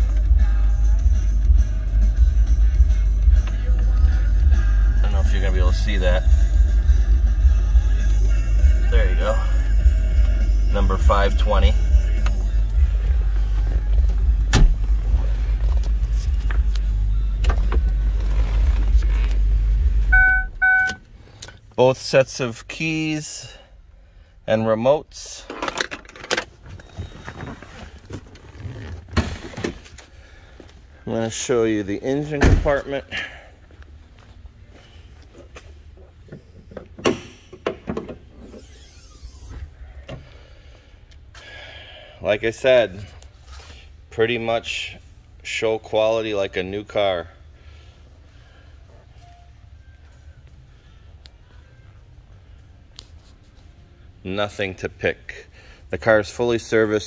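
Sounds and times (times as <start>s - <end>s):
car engine idling rumble: 0.0s - 23.0s
electronic chime beeps: 20.1s - 21.0s
car hood latch knocks and clicks: 36.7s - 38.2s.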